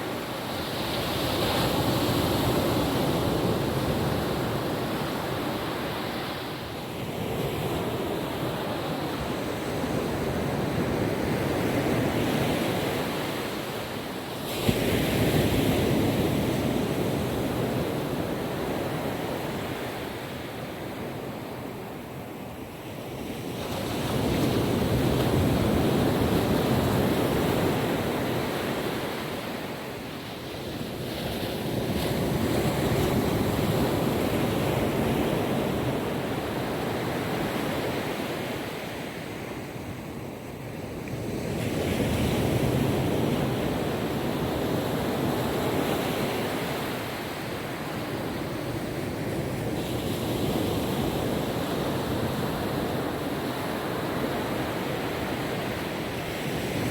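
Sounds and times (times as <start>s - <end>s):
ocean waves washing on beach: 0.0s - 56.9s.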